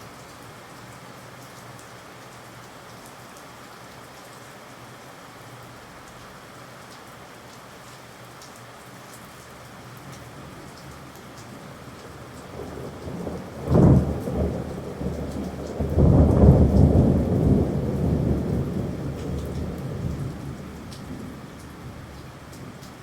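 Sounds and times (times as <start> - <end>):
steady rain: 0.0 - 23.0
thunderclap with low rumble: 12.4 - 22.8.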